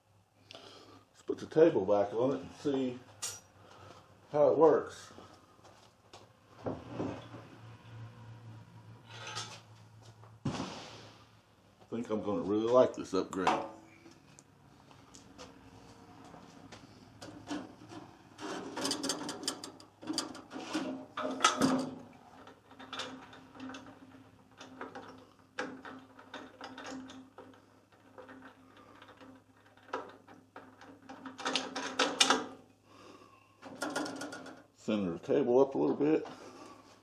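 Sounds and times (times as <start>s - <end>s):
metal clanks and scrapes: 9.0s - 9.7s, 17.2s - 32.5s.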